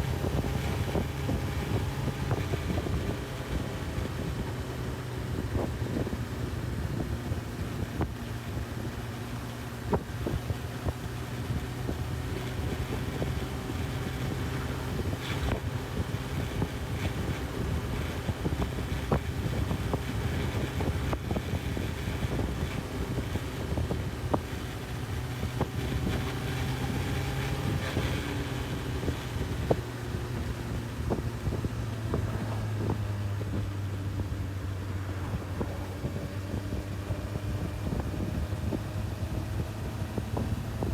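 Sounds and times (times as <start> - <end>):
motorcycle engine running: 0.0 - 40.9
wind rushing over microphone: 0.0 - 40.9.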